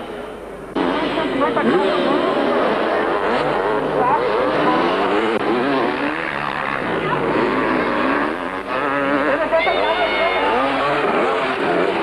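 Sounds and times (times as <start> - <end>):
motocross bike engines revving: 0.7 - 12.0.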